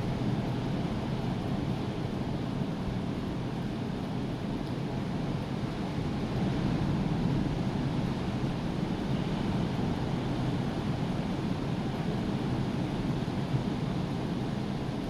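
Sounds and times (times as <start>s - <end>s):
wind: 0.0s - 15.0s.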